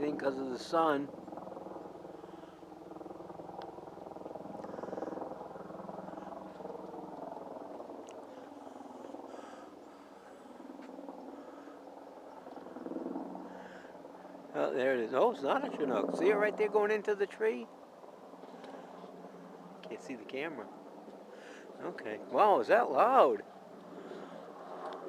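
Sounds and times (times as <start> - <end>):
helicopter flying overhead: 0.0 - 25.0.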